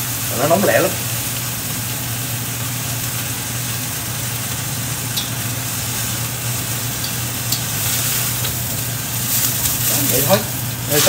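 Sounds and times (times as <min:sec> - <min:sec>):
greens sizzling in wok: 0:00.0 - 0:11.0
light stirring clicks: 0:07.0 - 0:07.8.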